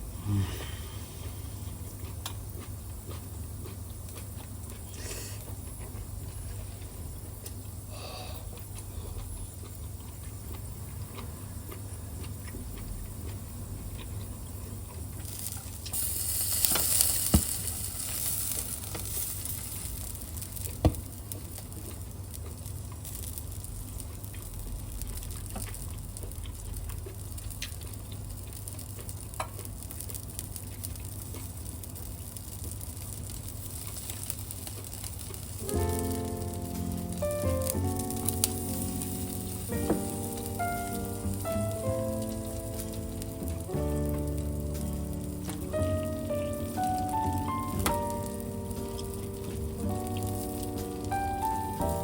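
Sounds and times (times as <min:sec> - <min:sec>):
steady low hum: 0:00.0 - 0:28.9, 0:33.4 - 0:52.0
meat sizzling on a grill: 0:14.8 - 0:52.0.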